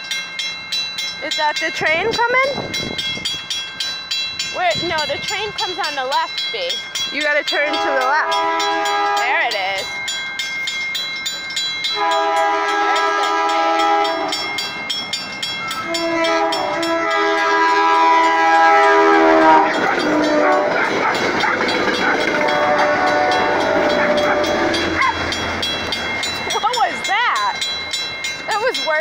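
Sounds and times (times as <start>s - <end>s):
train wheels rumbling on rails: 0.0s - 29.0s
train air horn blasts: 7.6s - 9.7s, 12.0s - 14.5s, 15.8s - 20.8s, 22.4s - 25.1s.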